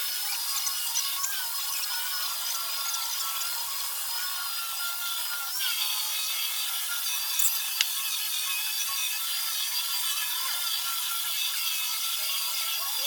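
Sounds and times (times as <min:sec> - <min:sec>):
power tool whining: 0:00.0 - 0:13.0
sharp click: 0:07.4 - 0:08.0.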